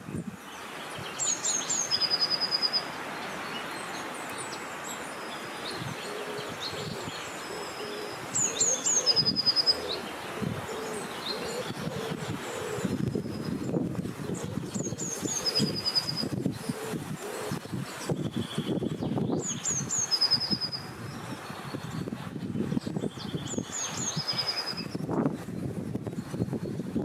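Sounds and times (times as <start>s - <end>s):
songbird singing: 0.0s - 27.0s
wind rushing: 11.7s - 19.5s.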